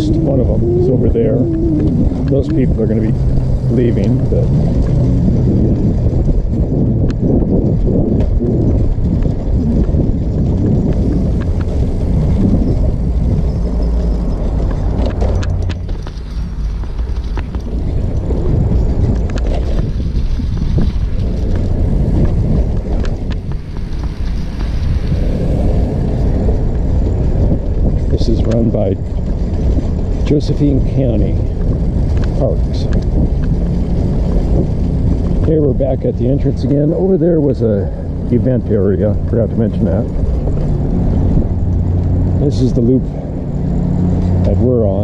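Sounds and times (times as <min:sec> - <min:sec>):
tricycle rolling rumble: 0:00.0 - 0:45.0
wind buffeting microphone: 0:00.0 - 0:45.0.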